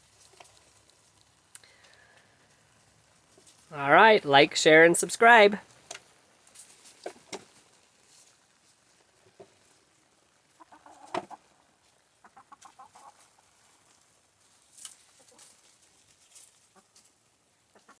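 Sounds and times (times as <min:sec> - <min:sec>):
chickens clucking: 0:06.7 - 0:14.2, 0:14.9 - 0:18.0.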